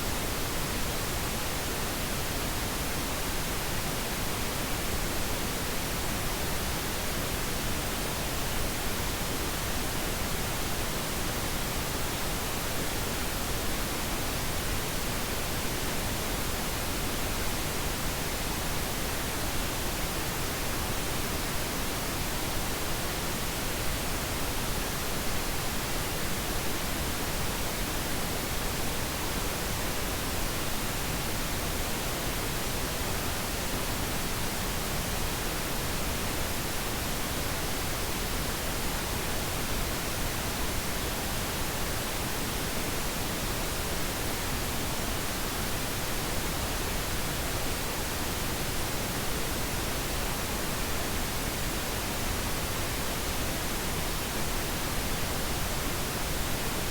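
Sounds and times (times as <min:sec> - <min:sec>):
pink noise hiss: 0:00.0 - 0:56.9.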